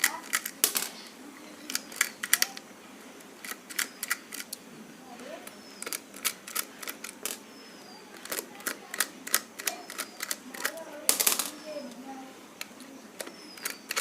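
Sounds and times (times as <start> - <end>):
screwdriver clicking on screws: 1.7 - 2.6, 3.4 - 4.6, 5.4 - 7.4, 8.2 - 12.0, 12.6 - 14.0.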